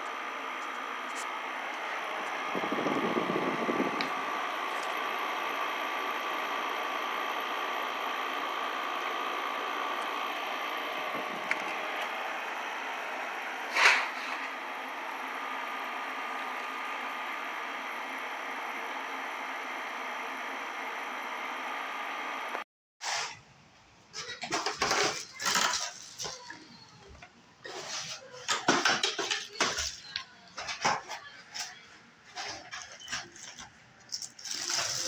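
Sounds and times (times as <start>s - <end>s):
air conditioner fan whoosh: 0.0s - 20.6s.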